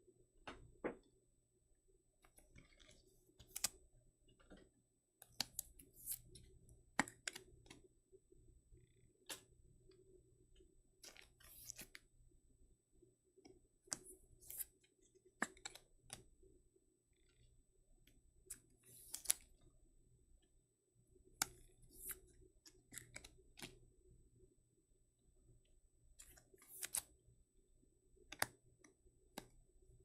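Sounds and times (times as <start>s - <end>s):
cards sliding into plastic holders: 3.4s - 3.7s, 11.1s - 12.0s, 18.9s - 19.4s, 26.2s - 27.1s.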